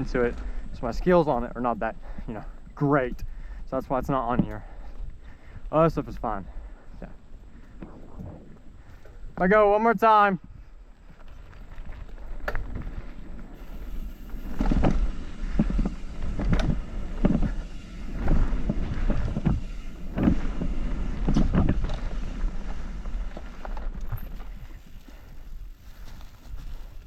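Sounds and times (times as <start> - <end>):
bike tyres rumbling over dirt: 0.0 - 27.0
wind noise on microphone: 3.2 - 9.4, 10.4 - 27.0.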